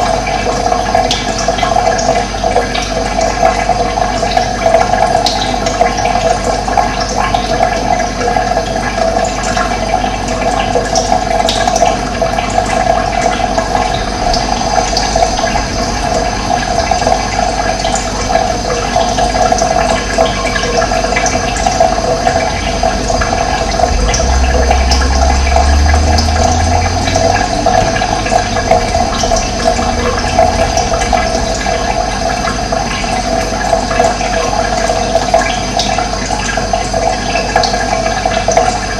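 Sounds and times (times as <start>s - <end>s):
water rushing and gurgling: 0.0s - 38.9s
low hum: 11.6s - 35.6s.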